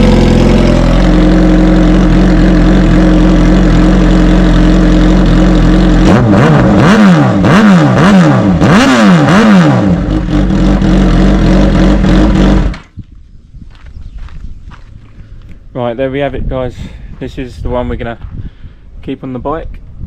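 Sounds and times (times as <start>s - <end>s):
motorcycle engine idling and revving: 0.0s - 15.5s.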